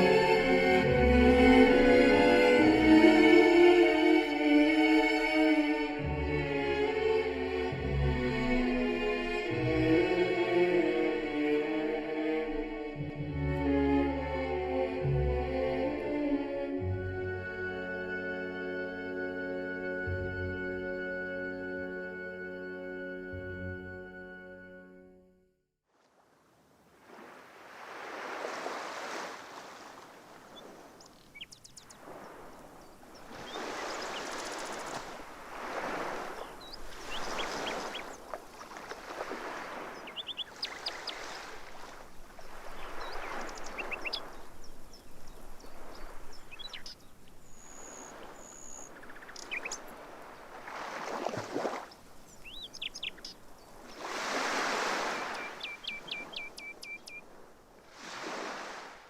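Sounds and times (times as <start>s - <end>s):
sea waves washing: 0.0s - 22.2s, 26.1s - 59.0s
small birds chirping: 30.5s - 35.2s, 36.3s - 38.8s, 39.8s - 50.5s, 51.7s - 57.3s.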